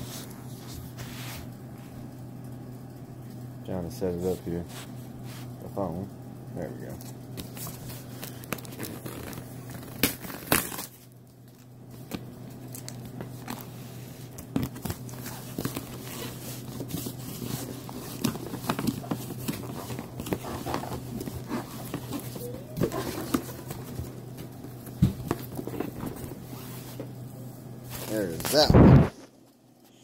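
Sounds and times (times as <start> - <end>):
low steady hum: 0.0 - 30.0
packaging crinkling and tearing: 7.4 - 24.0.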